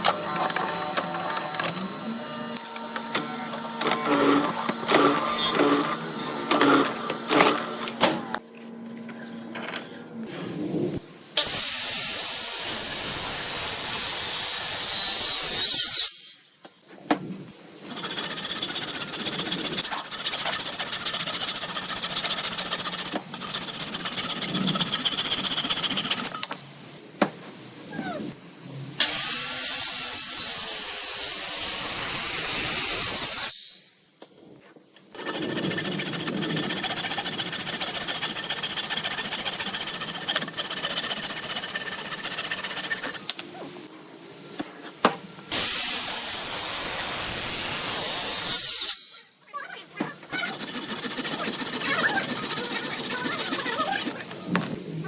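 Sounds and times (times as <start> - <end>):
power tools cutting wood: 0.0 - 8.4, 11.4 - 16.4, 29.0 - 33.7, 35.1 - 43.4, 45.5 - 49.2.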